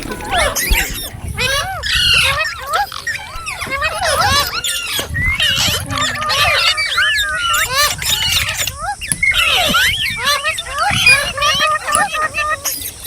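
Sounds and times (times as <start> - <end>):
parrots squawking and chattering: 0.0 - 13.0.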